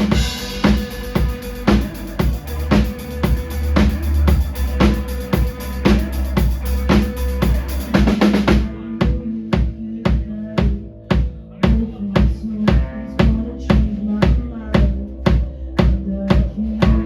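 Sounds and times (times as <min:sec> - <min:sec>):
cymbal wash: 0:00.0 - 0:08.5
live band music: 0:00.0 - 0:09.2
held low notes: 0:00.0 - 0:17.0.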